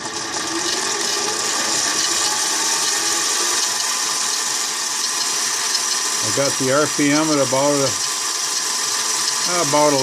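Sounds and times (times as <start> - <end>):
lathe running: 0.0 - 10.0.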